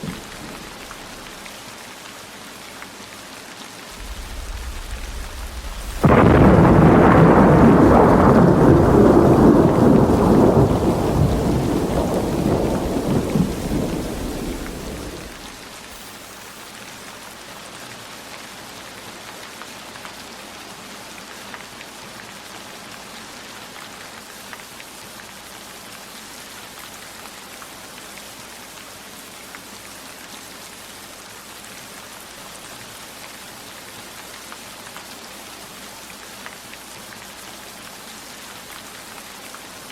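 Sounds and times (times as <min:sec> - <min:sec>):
loud thunderclap rumbling: 0:00.0 - 0:01.4, 0:04.0 - 0:15.6
steady rain: 0:00.0 - 0:39.9.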